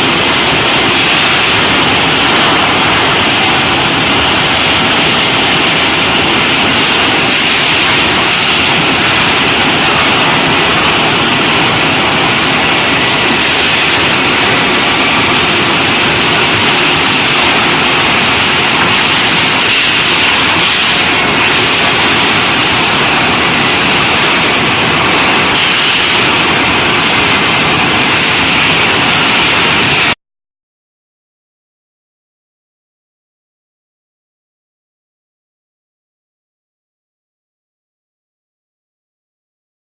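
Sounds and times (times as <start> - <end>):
heating equipment hissing: 0.0 - 30.2.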